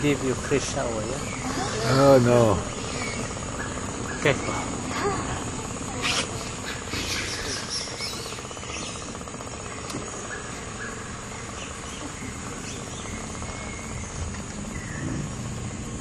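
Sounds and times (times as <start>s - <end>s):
insects droning: 0.0s - 16.0s
short bird calls: 6.0s - 9.1s.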